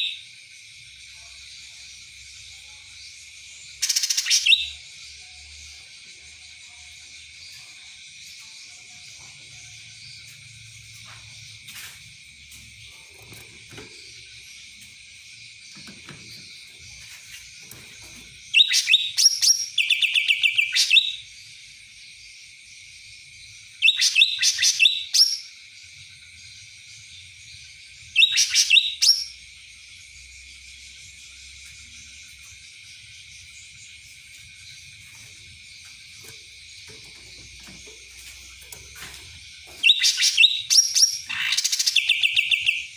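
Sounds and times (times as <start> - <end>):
songbird rapid high chirping: 0.0 - 42.9.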